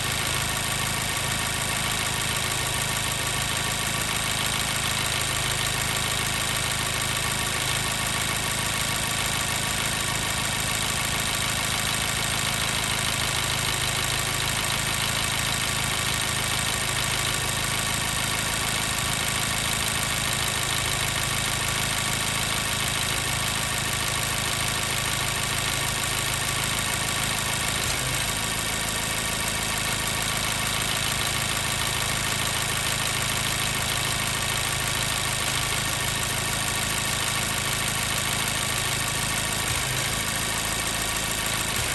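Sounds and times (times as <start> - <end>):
car engine idling with misfire: 0.0 - 41.9.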